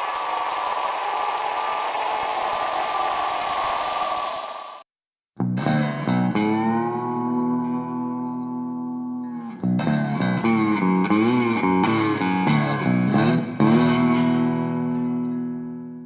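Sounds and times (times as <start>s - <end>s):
distorted electric guitar: 5.4s - 16.0s.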